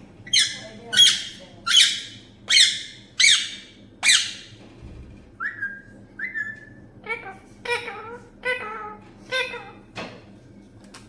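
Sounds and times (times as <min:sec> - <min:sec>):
parrot squawking: 0:00.3 - 0:04.5, 0:05.4 - 0:09.8
parrot whistle: 0:00.3 - 0:04.5, 0:05.4 - 0:06.8.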